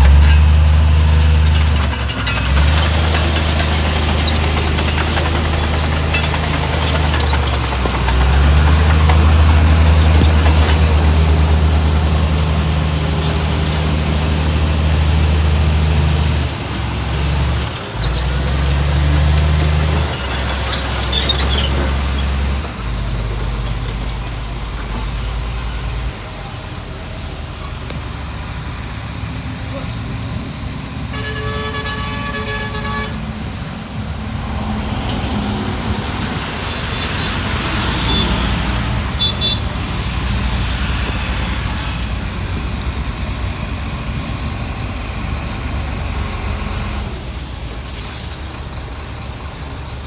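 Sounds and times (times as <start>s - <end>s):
heavy diesel engine running hard: 0.0s - 50.0s
metallic clinks and squeaks: 0.9s - 9.0s, 19.5s - 22.3s.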